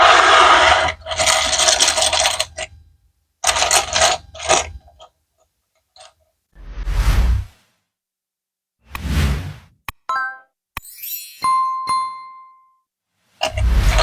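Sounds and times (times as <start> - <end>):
plastic bricks clattering: 0.0 - 2.7, 3.4 - 5.1.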